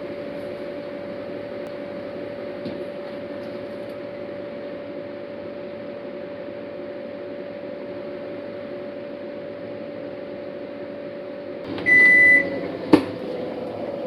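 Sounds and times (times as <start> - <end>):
washing machine humming: 0.0 - 14.0
short electronic beep: 11.8 - 12.6.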